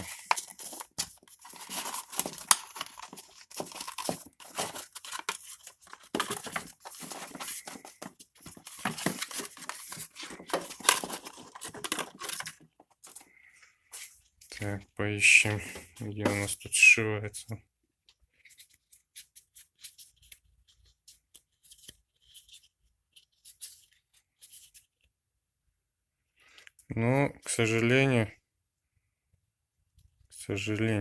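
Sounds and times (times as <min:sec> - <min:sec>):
rubber belt rustling and rubbing: 0:00.0 - 0:14.6.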